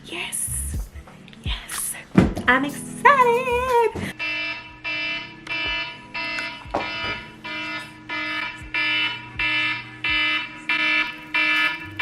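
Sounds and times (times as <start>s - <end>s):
electronic alarm beeping: 4.1s - 12.0s.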